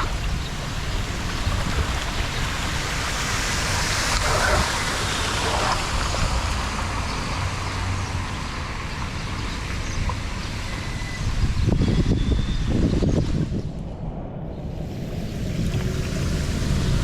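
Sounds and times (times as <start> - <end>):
wind on microphone: 0.0 - 7.5, 10.0 - 17.0
water rushing into a drain: 0.0 - 11.1, 14.8 - 17.0.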